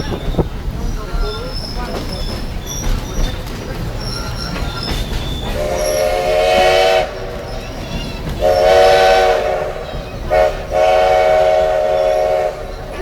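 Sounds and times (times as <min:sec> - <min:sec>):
moving train rumble: 0:00.0 - 0:13.0
steam locomotive whistle: 0:05.5 - 0:13.0.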